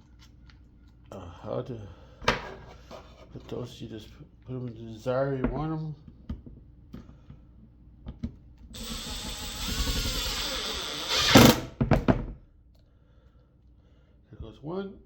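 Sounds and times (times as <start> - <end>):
power drill driving screw: 8.8 - 11.8.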